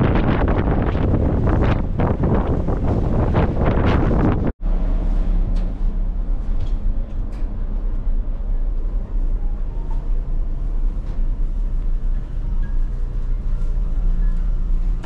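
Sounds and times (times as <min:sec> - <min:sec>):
vehicle interior drone: 0:04.2 - 0:15.0.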